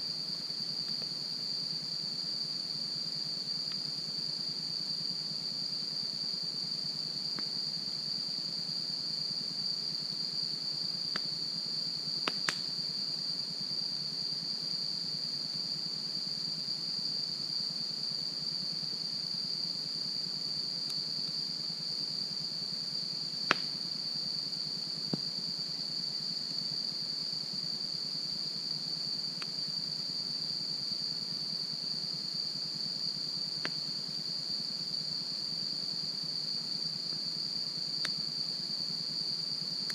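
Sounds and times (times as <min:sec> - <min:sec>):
crickets chirping: 0:00.0 - 0:39.9
campfire wood pops: 0:12.2 - 0:12.7, 0:23.4 - 0:23.8, 0:33.6 - 0:33.8.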